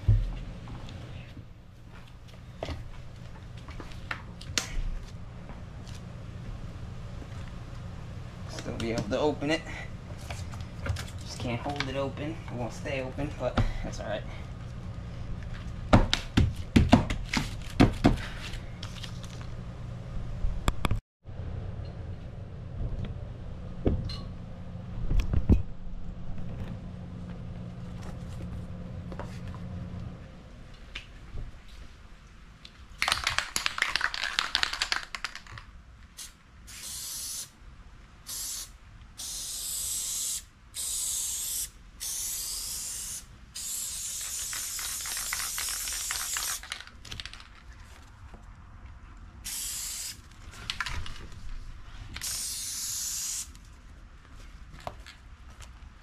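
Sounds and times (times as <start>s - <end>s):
low steady hum: 0.0s - 33.0s
aerosol spray can hissing: 36.2s - 37.5s, 38.3s - 46.7s, 49.4s - 50.2s, 52.2s - 53.5s.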